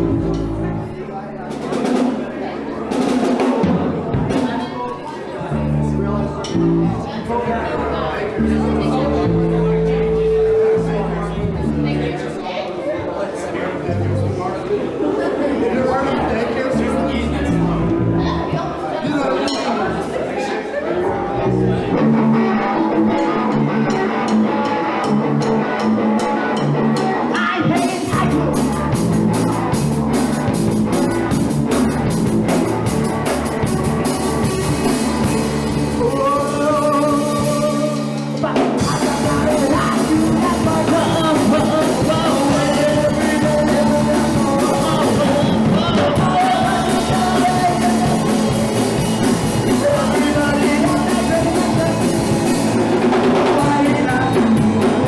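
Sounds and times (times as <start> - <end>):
bass guitar: 0.0 - 4.7, 5.4 - 12.6, 13.7 - 19.2, 20.9 - 55.0
drums and cymbals: 0.0 - 4.8, 24.2 - 55.0
electric guitar: 0.0 - 12.6, 20.9 - 55.0
person singing: 8.2 - 11.8, 21.1 - 31.4, 33.0 - 55.0.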